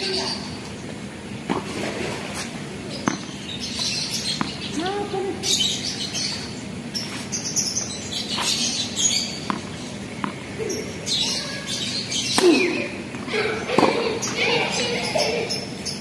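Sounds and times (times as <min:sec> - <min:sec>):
birds chirping: 0:00.0 - 0:16.0
tennis ball bouncing on court: 0:02.9 - 0:04.9, 0:09.1 - 0:10.8, 0:12.3 - 0:14.5.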